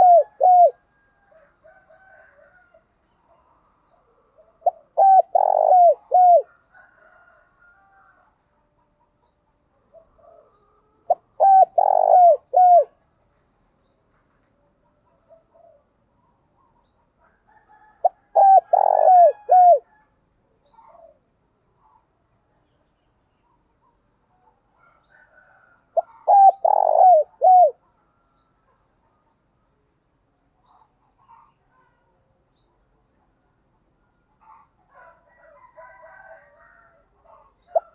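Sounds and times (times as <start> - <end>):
dove cooing: 0.0 - 2.5, 4.4 - 7.3, 9.9 - 13.0, 15.3 - 15.9, 17.8 - 20.0, 20.7 - 21.2, 25.2 - 27.9, 37.3 - 37.9
faint bird chirping: 20.6 - 29.9.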